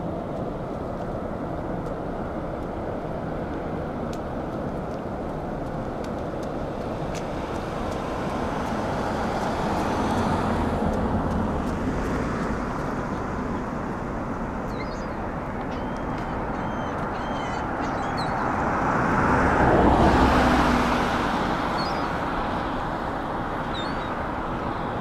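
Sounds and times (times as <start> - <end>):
road traffic noise: 0.0 - 25.0
vehicle passing: 6.7 - 15.5, 16.3 - 24.6.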